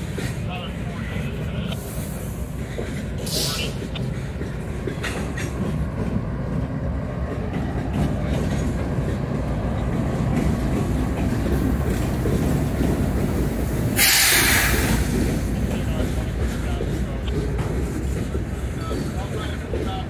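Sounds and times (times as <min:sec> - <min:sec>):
diesel locomotives rumbling: 0:00.0 - 0:20.0
wheels clacking over rail joints: 0:00.0 - 0:20.0
loud hiss: 0:13.9 - 0:15.1.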